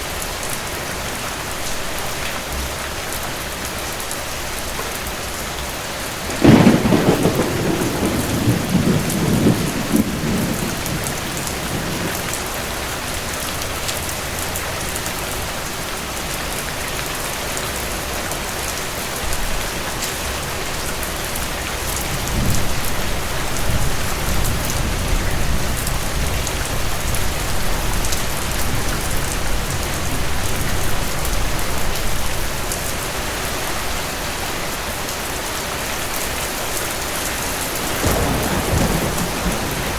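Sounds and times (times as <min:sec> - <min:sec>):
heavy rain falling: 0:00.0 - 0:39.9
thunder rumbling: 0:06.2 - 0:13.3, 0:36.5 - 0:39.9.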